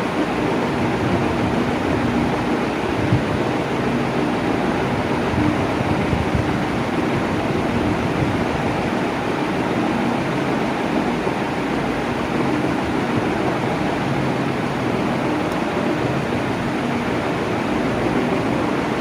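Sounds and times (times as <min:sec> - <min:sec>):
electric fan running: 0:00.0 - 0:19.0.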